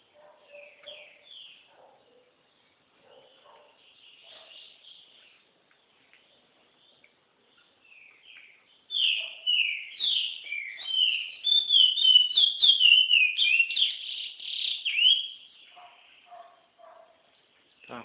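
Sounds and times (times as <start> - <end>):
bird singing whistled phrases: 8.0 - 15.4.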